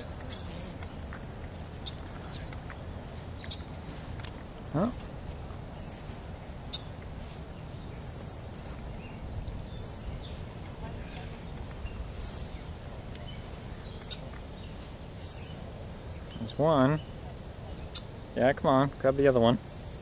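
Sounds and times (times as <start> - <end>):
bird high down-slurred call: 0.0 - 0.9, 5.8 - 7.2, 9.7 - 10.4, 15.2 - 15.8.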